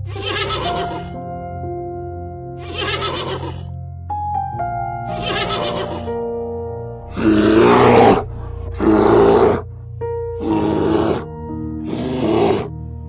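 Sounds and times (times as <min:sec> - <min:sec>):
background music sustained notes: 0:00.0 - 0:13.0
bear growling roars: 0:07.1 - 0:09.7, 0:10.4 - 0:12.7.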